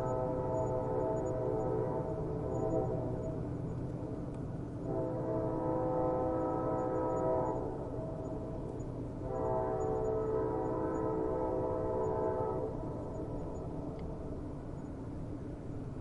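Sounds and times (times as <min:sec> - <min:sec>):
train horn blasts: 0:00.0 - 0:03.4, 0:04.8 - 0:07.9, 0:09.2 - 0:12.9
train rumbling: 0:00.0 - 0:16.0.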